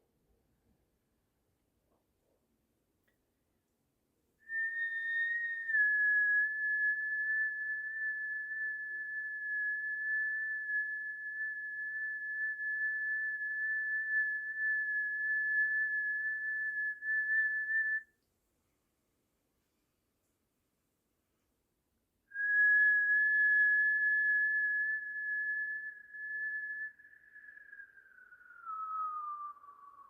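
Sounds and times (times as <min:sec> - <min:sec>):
high whistled note: 0:22.3 - 0:30.0.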